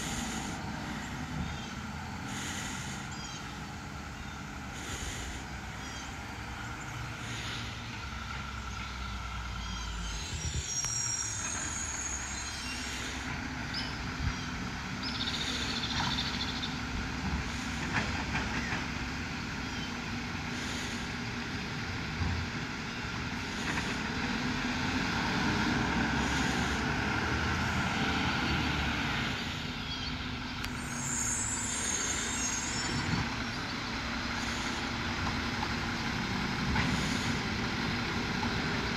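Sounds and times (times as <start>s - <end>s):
air brakes hissing: 0.0s - 8.5s, 9.6s - 18.8s, 26.0s - 29.8s, 30.7s - 38.1s
garbage truck engine running: 0.0s - 38.9s.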